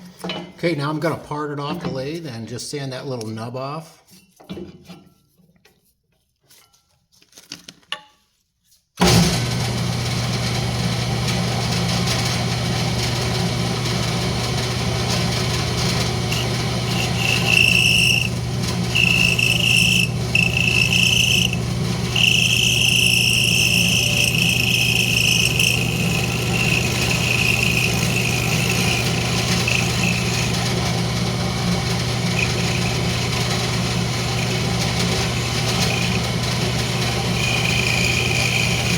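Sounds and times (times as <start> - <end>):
wood lathe humming: 9.3 - 38.9
high squeal of tool cutting wood: 13.2 - 38.9.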